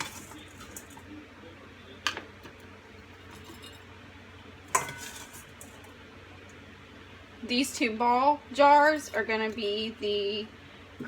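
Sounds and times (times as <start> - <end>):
glass jars clinking: 4.7 - 5.5.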